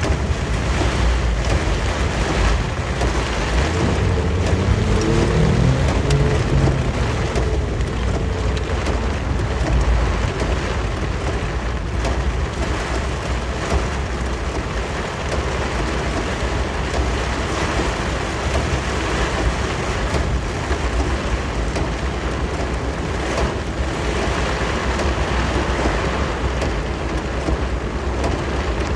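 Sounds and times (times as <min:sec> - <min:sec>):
two-stroke engine rumbling: 0:00.0 - 0:12.4
heavy rain: 0:00.0 - 0:28.9
tyres on wet road: 0:00.0 - 0:28.9.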